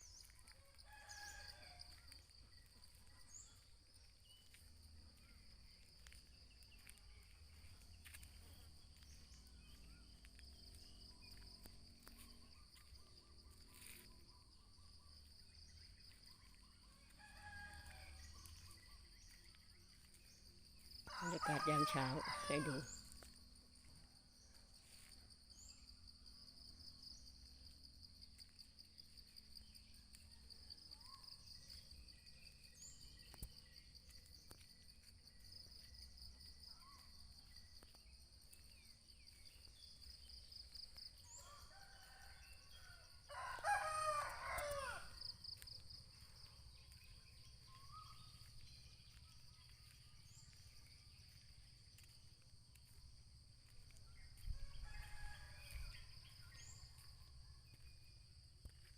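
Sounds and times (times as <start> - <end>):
rooster crowing: 0.8 - 2.0, 21.1 - 23.0, 41.3 - 45.2, 54.6 - 56.0.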